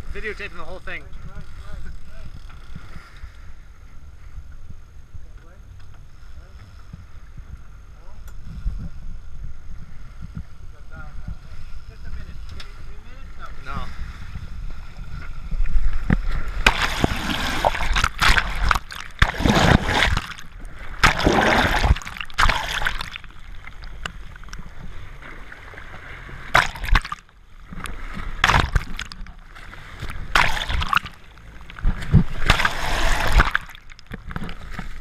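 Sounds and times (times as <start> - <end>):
water splashing and sloshing: 13.7 - 35.0.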